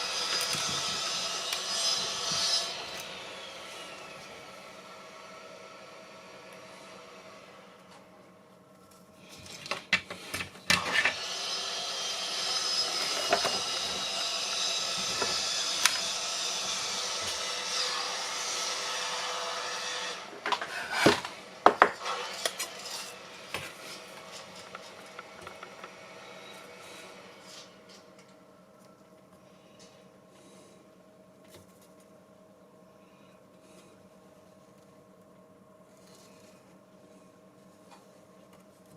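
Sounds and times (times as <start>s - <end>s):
tool scraping workpiece: 12.1s - 26.0s.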